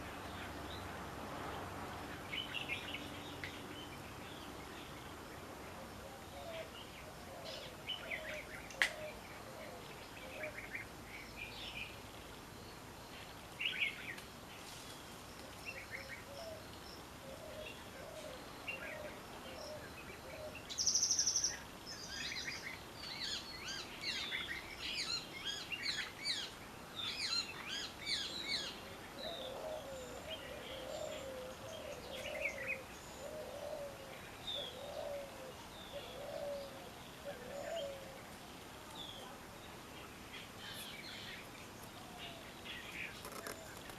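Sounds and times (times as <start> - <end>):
wild birds chirping: 0.0 - 43.9.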